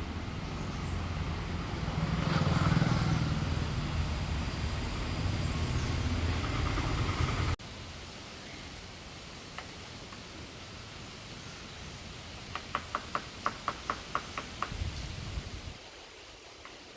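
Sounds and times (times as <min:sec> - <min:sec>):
vehicle engine rumble: 0:00.0 - 0:08.0
faint hiss: 0:07.6 - 0:16.9.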